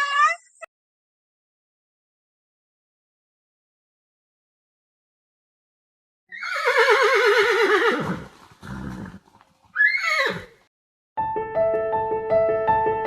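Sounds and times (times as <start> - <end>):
horse whinnying: 6.3 - 10.7
horse breathy snort: 8.0 - 9.8.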